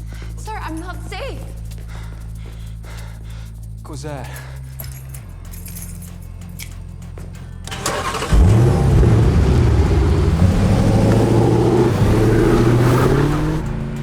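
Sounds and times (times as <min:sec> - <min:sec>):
car engine revving and accelerating: 0:07.7 - 0:14.0.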